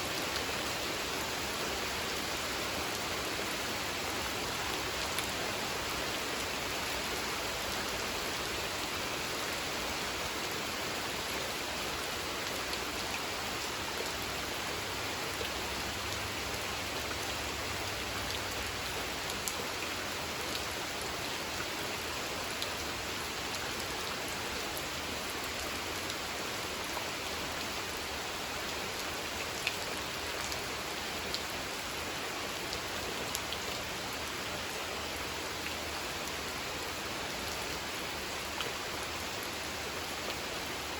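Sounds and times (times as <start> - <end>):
rain falling on a pond: 0.0 - 40.9.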